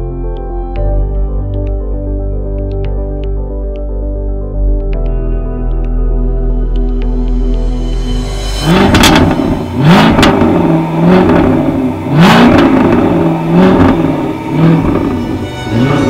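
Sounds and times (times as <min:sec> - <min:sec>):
sports car engine revving: 0:08.6 - 0:16.0.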